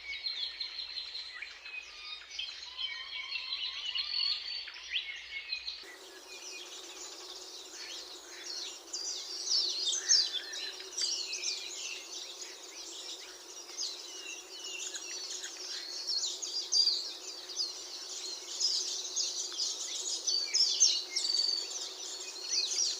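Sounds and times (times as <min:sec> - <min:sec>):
birds chirping and singing: 0:05.8 - 0:22.9.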